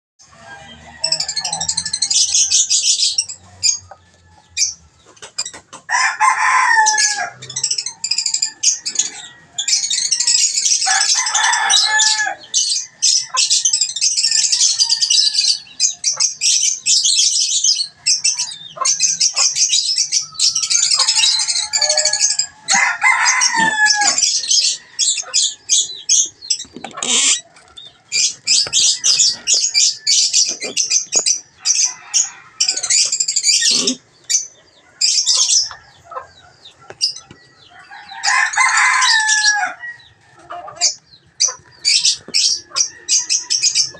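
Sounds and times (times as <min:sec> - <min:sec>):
lovebirds chattering: 0:00.3 - 0:43.9
low bird calls sliding down: 0:26.9 - 0:27.5.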